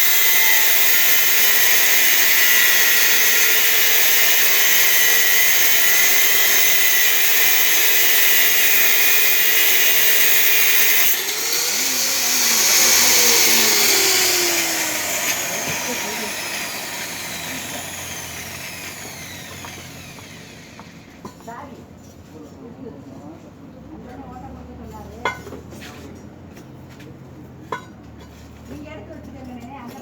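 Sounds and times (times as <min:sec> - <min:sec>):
power tool whining: 0:00.0 - 0:21.3.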